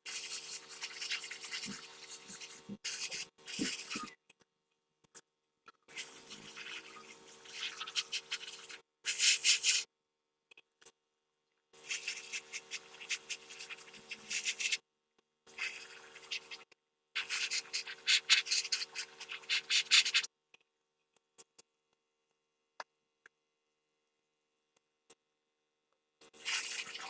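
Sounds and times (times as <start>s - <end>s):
scraping and rubbing: 0.1s - 4.1s, 11.8s - 14.8s.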